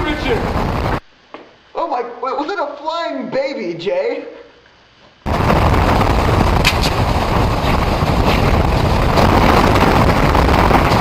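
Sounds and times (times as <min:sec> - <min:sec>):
faint crackles: 0:05.3 - 0:11.0
wind buffeting microphone: 0:05.3 - 0:11.0.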